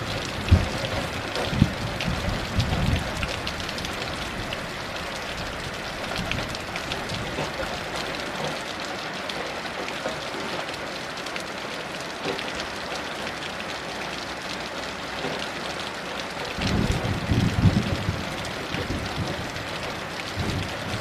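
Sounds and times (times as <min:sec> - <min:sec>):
distant thunder rumble: 0:00.0 - 0:07.8, 0:16.5 - 0:21.0
heavy rain falling: 0:00.0 - 0:21.0.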